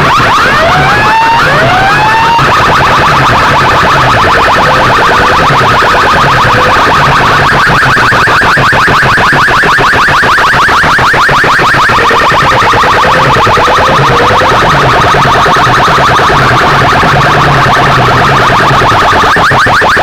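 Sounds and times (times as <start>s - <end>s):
pulsing alarm-like tone: 0.0s - 20.0s
rising siren whoops: 0.0s - 20.0s
low repeating bass: 0.1s - 7.7s, 11.6s - 19.8s.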